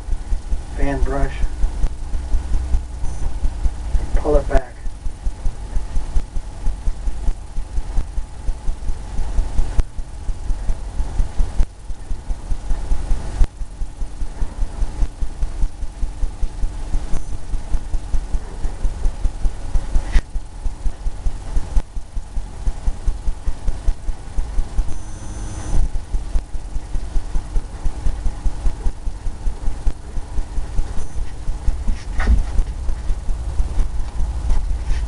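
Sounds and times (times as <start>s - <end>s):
brush dabbing on canvas: 31.2s - 33.2s.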